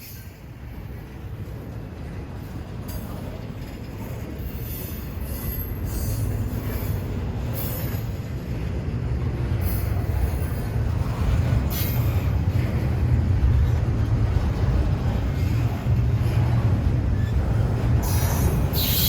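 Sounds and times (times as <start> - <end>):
train rumbling by: 0.0 - 19.0
high wheel squeals: 17.1 - 19.0.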